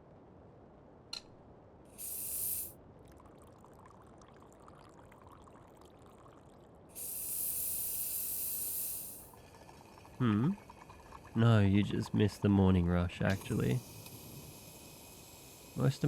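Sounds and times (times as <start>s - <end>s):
espresso steam wand hissing: 1.9s - 2.7s, 7.0s - 12.2s, 13.2s - 16.0s.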